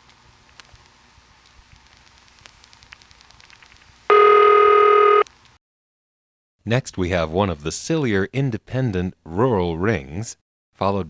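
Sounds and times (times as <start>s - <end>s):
buzzy telephone ring tone: 4.1s - 5.2s.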